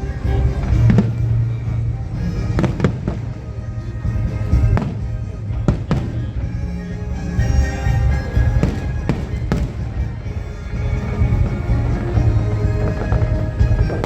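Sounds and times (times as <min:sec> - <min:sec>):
music over loudspeakers: 0:00.0 - 0:14.0
fireworks exploding: 0:00.6 - 0:01.7, 0:02.5 - 0:03.5, 0:04.3 - 0:06.4, 0:08.2 - 0:14.0.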